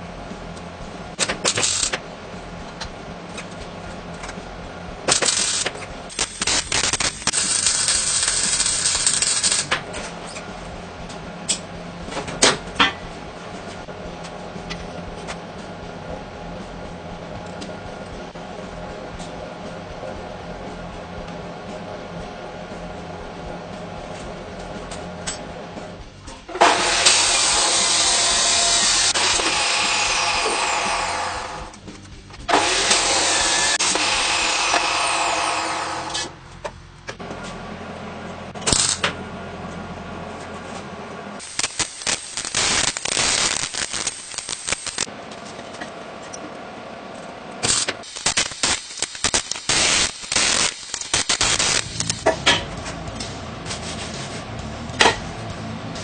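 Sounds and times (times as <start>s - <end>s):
power tool running: 5.1s - 9.8s, 26.5s - 31.8s, 32.5s - 36.4s, 41.4s - 45.1s, 47.6s - 55.2s.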